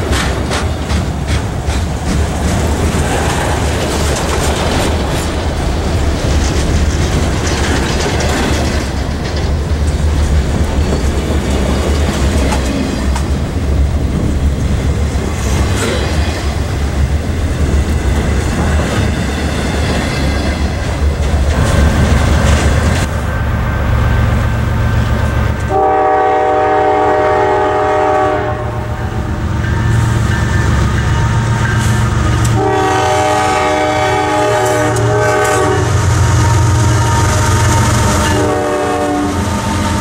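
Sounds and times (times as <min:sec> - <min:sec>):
wheels clicking over rail joints: 0:00.0 - 0:23.2
freight train rumbling past: 0:00.0 - 0:40.0.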